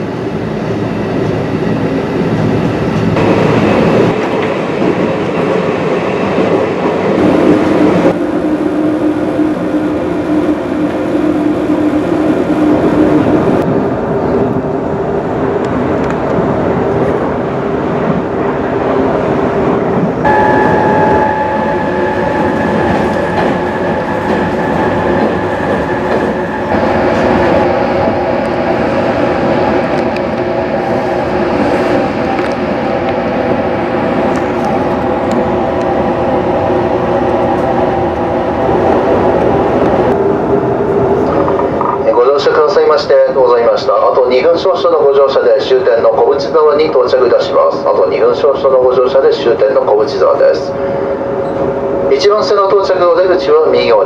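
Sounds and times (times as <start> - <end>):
train motor and wheel noise: 0.0 - 54.0
higher tone: 20.3 - 25.5.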